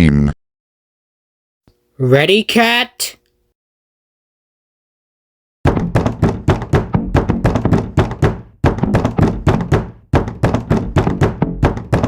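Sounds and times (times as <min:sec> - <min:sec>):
rapid sharp drum hits: 0:05.7 - 0:12.0.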